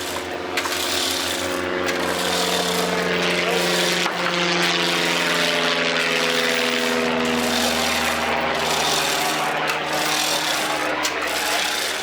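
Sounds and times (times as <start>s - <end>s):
machine drone with held tones: 0.0s - 12.0s.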